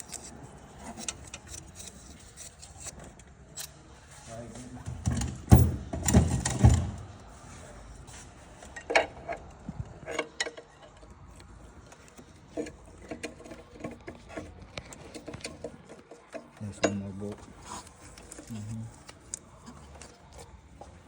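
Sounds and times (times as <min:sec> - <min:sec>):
metal tools knocking and clinking: 0:15.2 - 0:17.5.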